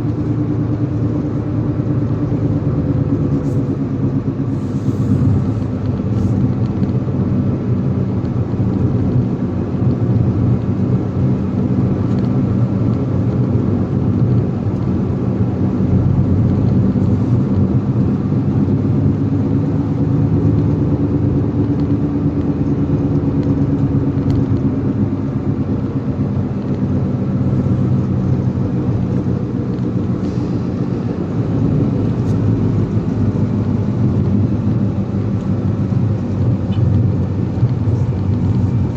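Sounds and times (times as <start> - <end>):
road noise: 0.0 - 38.9
vehicle engine running: 0.0 - 38.9.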